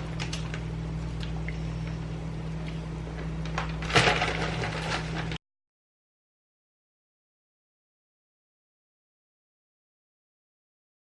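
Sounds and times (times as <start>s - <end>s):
steady low hum: 0.0s - 5.4s
frozen vegetables rattling into pot: 3.5s - 5.4s.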